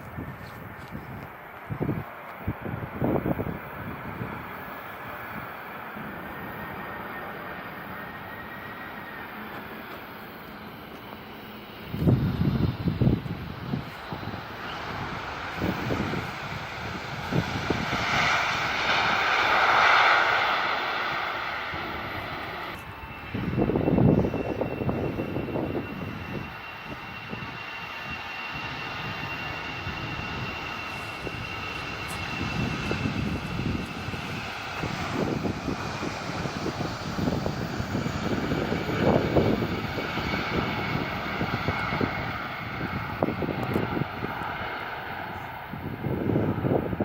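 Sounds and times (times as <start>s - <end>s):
jet engines whining: 0.0s - 47.0s
low rumble: 28.6s - 44.4s.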